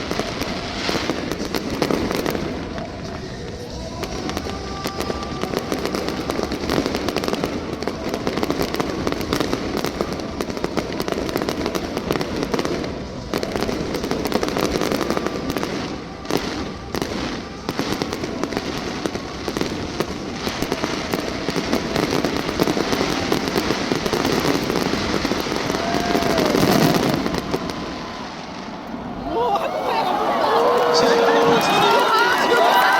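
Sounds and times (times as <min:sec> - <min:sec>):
fireworks popping and crackling: 0:00.0 - 0:29.2, 0:30.6 - 0:32.9.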